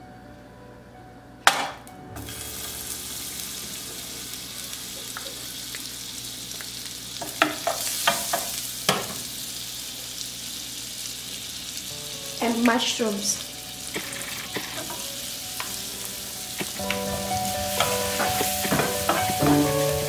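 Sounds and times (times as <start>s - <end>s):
butter sizzling in frying pan: 2.2s - 20.0s
spatula scraping pan: 14.0s - 15.1s, 17.8s - 19.8s.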